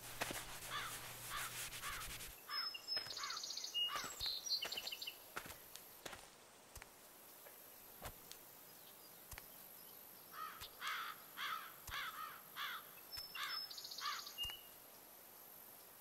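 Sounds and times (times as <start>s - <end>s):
faint outdoor ambience: 0.0s - 16.0s
crow-like caws: 0.7s - 4.2s, 10.3s - 14.4s.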